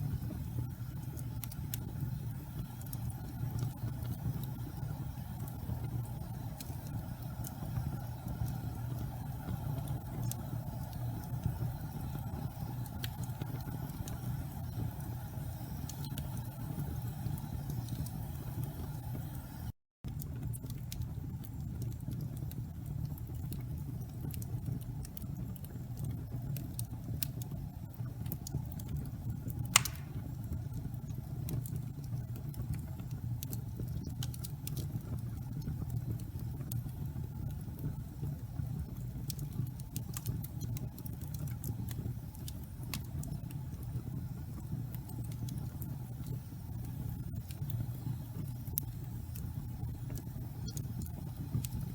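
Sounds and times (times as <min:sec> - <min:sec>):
fire crackling: 0:00.0 - 0:51.9
fire rumbling: 0:00.0 - 0:51.9
sharp pop from fire: 0:29.6 - 0:30.5.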